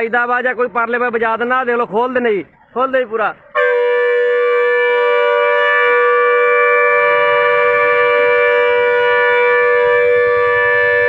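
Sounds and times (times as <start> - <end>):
truck horn blaring: 3.5 - 11.0.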